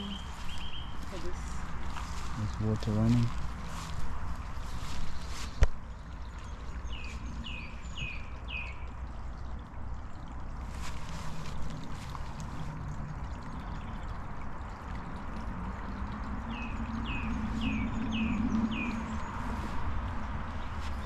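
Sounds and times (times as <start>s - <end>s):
bird chirping: 0.0s - 1.3s
water trickling: 0.0s - 21.0s.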